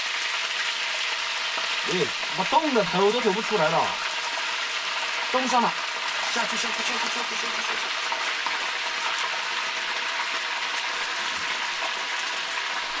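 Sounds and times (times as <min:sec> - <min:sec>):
pork sizzling in a wok: 0:00.0 - 0:13.0.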